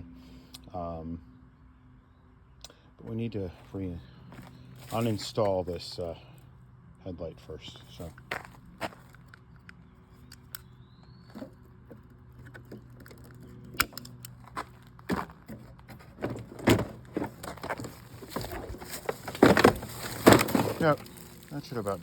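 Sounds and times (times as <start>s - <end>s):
tools and plastic parts clicking: 9.1s - 10.7s, 11.4s - 14.6s.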